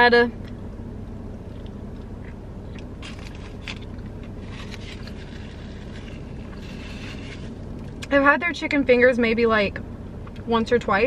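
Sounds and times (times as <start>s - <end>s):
low hum from car: 0.0s - 11.0s
chewing crispy food: 1.3s - 8.1s.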